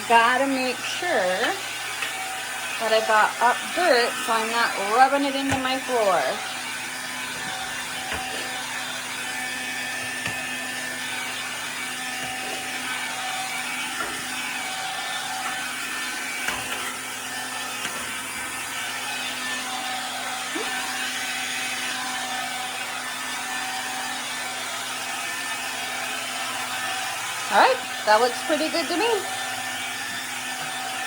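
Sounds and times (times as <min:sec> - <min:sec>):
stick vacuum motor whine: 0:00.0 - 0:31.0
vacuum clicks and knocks on floor: 0:03.6 - 0:11.3, 0:12.1 - 0:17.1, 0:17.7 - 0:18.6.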